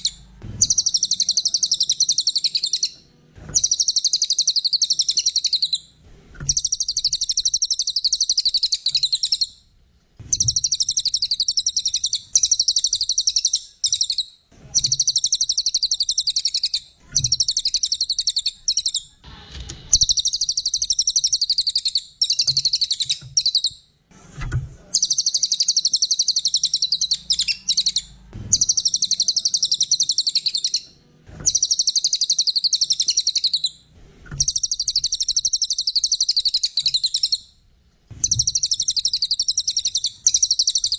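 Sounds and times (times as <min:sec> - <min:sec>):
songbird chattering song: 0:00.0 - 0:05.9, 0:06.5 - 0:09.6, 0:10.3 - 0:19.2, 0:19.9 - 0:23.8, 0:25.0 - 0:33.8, 0:34.4 - 0:37.5, 0:38.2 - 0:40.9.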